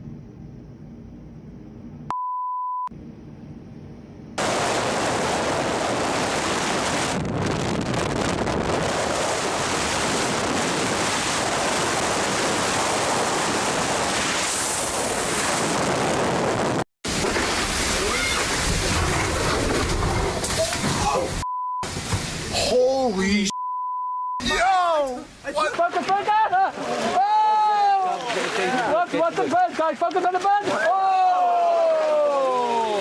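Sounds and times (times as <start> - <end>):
censor beep: 2.1 - 2.9, 21.4 - 21.9, 23.5 - 24.4.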